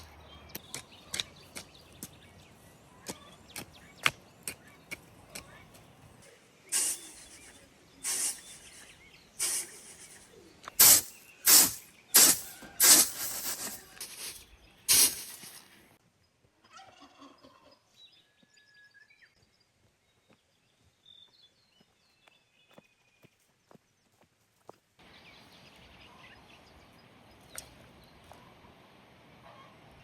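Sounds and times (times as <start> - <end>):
faint bird chirps: 0.0 - 12.8
turkeys gobbling: 16.6 - 17.8.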